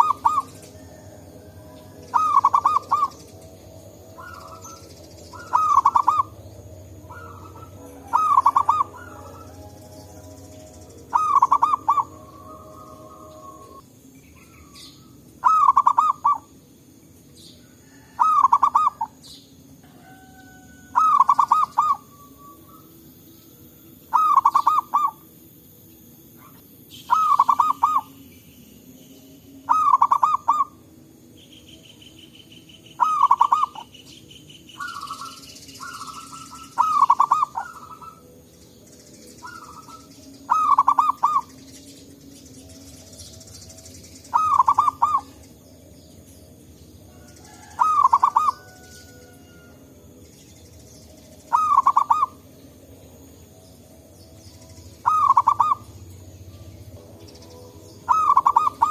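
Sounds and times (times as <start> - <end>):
dove rapid staccato cooing: 0.0 - 3.4, 4.1 - 9.8, 11.1 - 13.8, 15.4 - 16.5, 18.1 - 19.2, 20.9 - 22.2, 24.1 - 25.2, 26.4 - 28.1, 29.7 - 30.8, 33.0 - 33.9, 34.8 - 38.3, 39.4 - 41.6, 44.3 - 45.4, 47.6 - 48.8, 51.5 - 52.4, 55.0 - 56.0, 58.1 - 58.9
steady buzzing trill: 0.0 - 19.9, 20.9 - 58.9.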